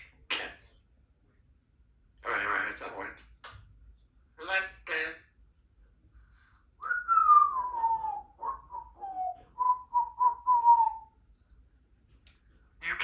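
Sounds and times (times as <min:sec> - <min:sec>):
parrot whistling: 0:06.8 - 0:11.1.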